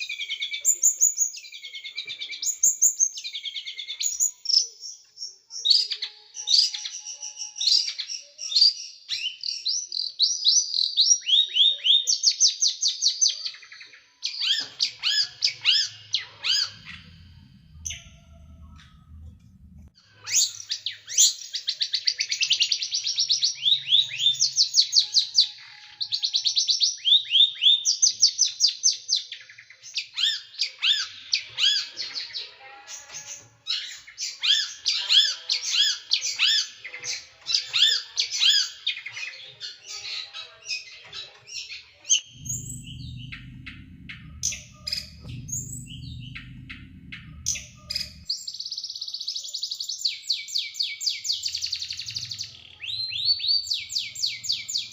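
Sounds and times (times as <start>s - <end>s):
low rumble: 15.6s - 20.0s, 42.2s - 48.3s.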